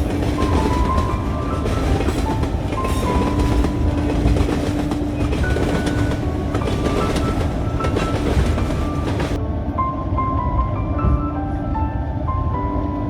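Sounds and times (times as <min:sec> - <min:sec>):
wheels clacking over rail joints: 0:00.0 - 0:09.4
train rumbling along track: 0:00.0 - 0:13.0.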